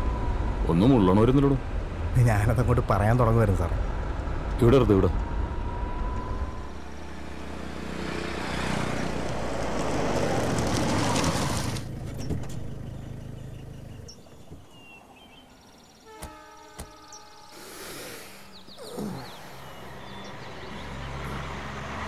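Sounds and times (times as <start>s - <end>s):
low engine hum: 0.0s - 15.8s
jeep engine and tyre noise: 0.0s - 22.0s.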